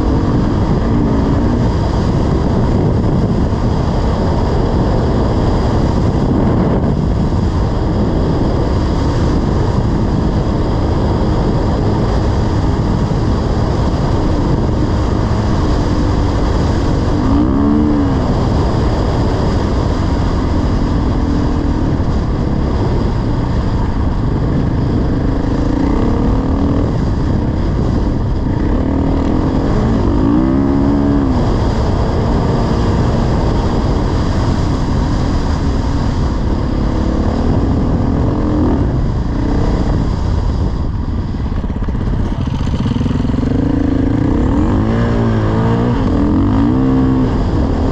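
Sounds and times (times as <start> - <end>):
dirt bike engine running: 0.0 - 47.9
steady rushing noise: 0.0 - 47.9.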